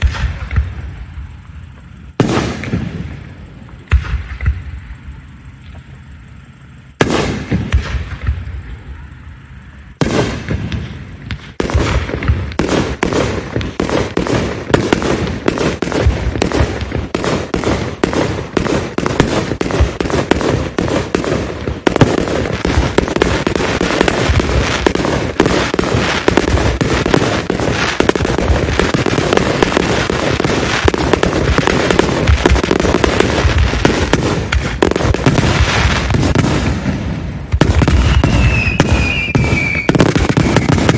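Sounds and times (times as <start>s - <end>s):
fireworks bursting: 0.0s - 40.9s.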